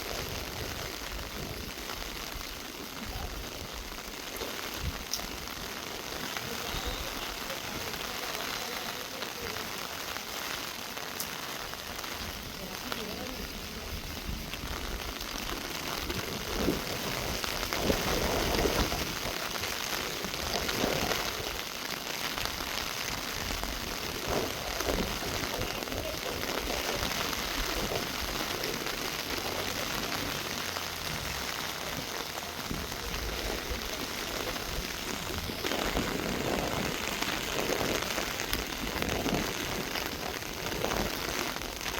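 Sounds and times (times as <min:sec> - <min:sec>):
heavy drips and splashes: 0:00.0 - 0:41.9
rain falling on foliage: 0:00.0 - 0:41.9.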